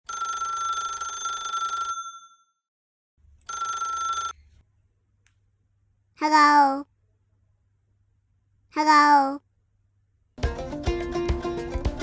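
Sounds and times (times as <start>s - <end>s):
telephone ringing: 0.1s - 2.5s, 3.5s - 4.4s.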